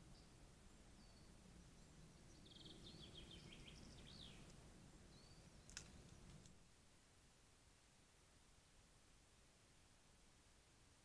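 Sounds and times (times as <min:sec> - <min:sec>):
songbird singing: 0:00.0 - 0:06.8
low background noise: 0:00.0 - 0:11.0.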